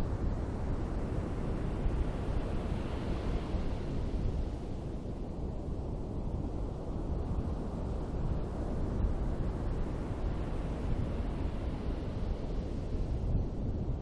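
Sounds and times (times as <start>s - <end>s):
ocean surf on a beach: 1.0s - 4.8s.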